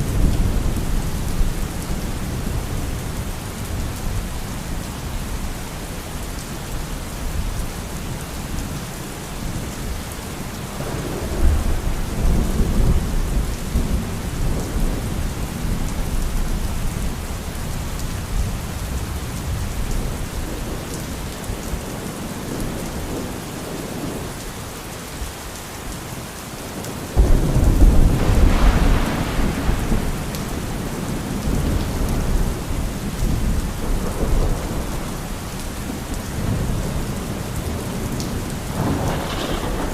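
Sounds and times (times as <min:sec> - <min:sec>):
steady rain: 0:00.0 - 0:39.9
rolling thunder: 0:10.8 - 0:16.6, 0:27.2 - 0:39.9
loud thunderclap: 0:27.2 - 0:35.1, 0:38.7 - 0:39.9.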